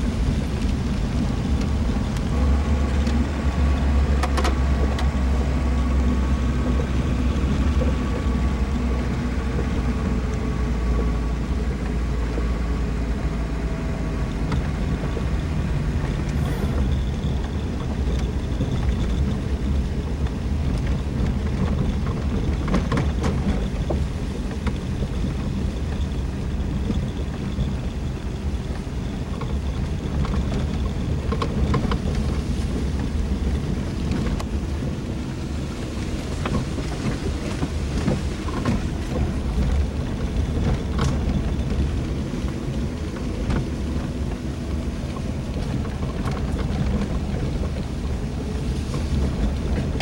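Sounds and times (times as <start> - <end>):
vehicle engine and road rumble: 0.0 - 50.0
faint whine: 13.8 - 50.0.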